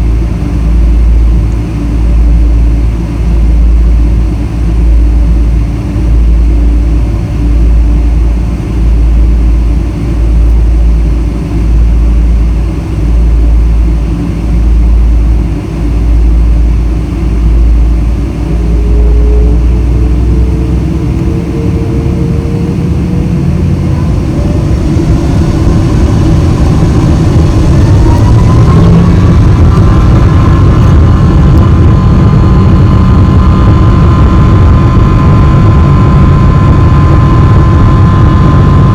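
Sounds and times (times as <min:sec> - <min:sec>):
low pulsing rumble: 0:00.0 - 0:38.9
jet engines spooling up: 0:15.4 - 0:38.9.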